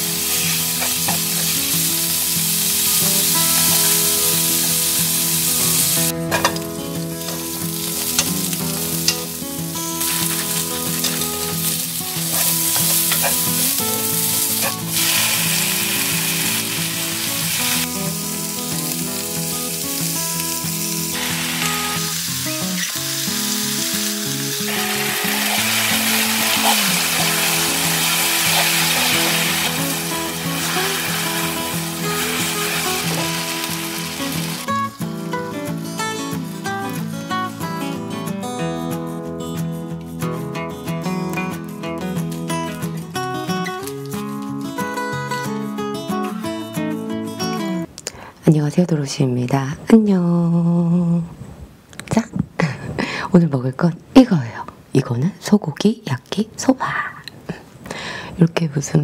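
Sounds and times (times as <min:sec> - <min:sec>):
food sizzling in a wok: 0:00.0 - 0:36.7.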